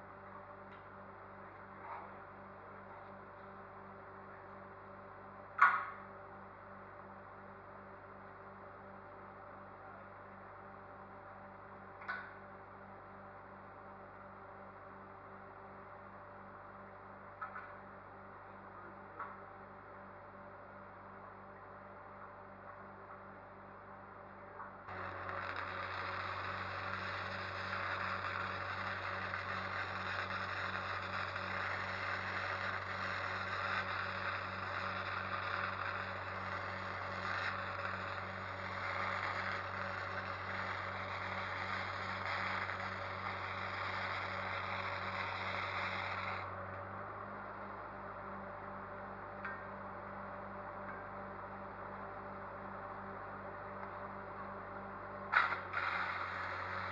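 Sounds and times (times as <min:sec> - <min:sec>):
low steady hum: 0:00.0 - 0:56.9
arc welding: 0:24.9 - 0:46.9, 0:55.3 - 0:56.9.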